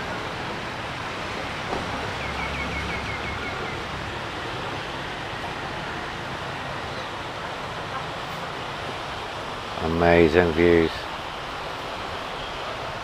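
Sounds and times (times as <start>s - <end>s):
low engine hum: 0.0s - 9.9s
road traffic: 0.0s - 13.0s
sea waves: 0.0s - 13.0s
wind: 0.0s - 13.0s.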